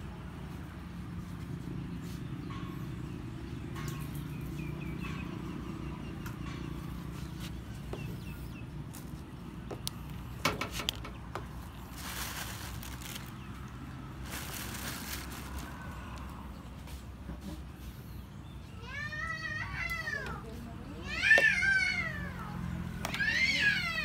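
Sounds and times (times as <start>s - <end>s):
bird chirping: 2.2s - 11.9s
handling dry feed mix: 7.0s - 17.1s.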